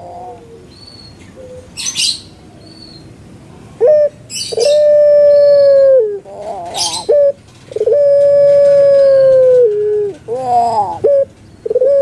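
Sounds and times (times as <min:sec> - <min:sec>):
dove cooing: 0:00.0 - 0:02.1, 0:03.8 - 0:12.0.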